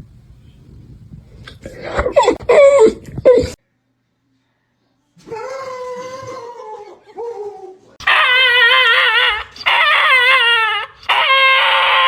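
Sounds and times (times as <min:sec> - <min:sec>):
dog whining and howling: 0:08.0 - 0:12.0.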